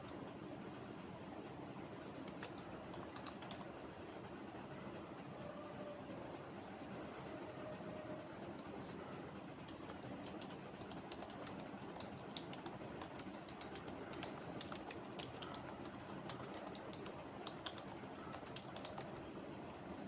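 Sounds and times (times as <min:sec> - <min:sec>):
low background noise: 0:00.0 - 0:20.0
keyboard keystroke clicks: 0:02.3 - 0:03.6, 0:09.7 - 0:19.3.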